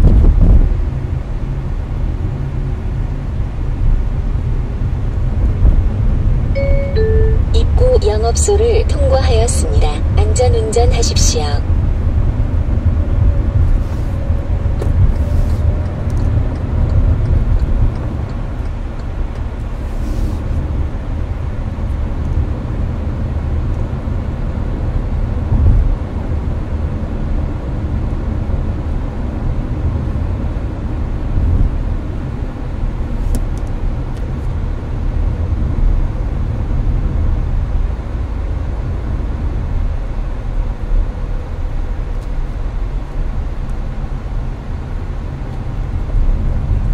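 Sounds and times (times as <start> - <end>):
road and engine rumble: 0.0 - 46.9.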